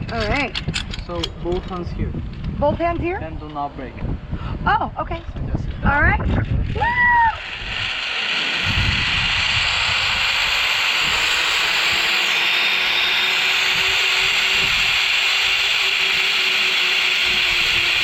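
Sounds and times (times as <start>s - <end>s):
pulley hum: 5.8s - 18.0s
zipline trolley rushing hiss: 6.5s - 18.0s.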